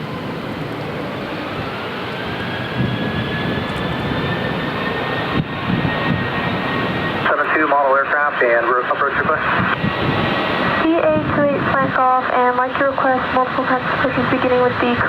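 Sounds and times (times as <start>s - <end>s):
jet engine rush with whine: 0.0s - 15.0s.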